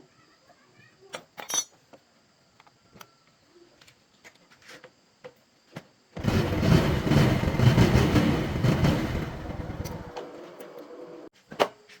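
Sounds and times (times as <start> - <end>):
loud steady machine noise: 6.2 - 10.2.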